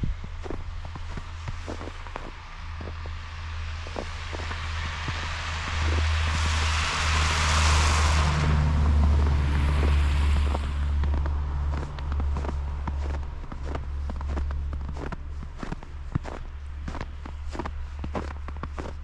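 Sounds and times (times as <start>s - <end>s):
steady low rumble: 0.0s - 19.0s
vehicle tyre hiss passing: 1.0s - 14.7s.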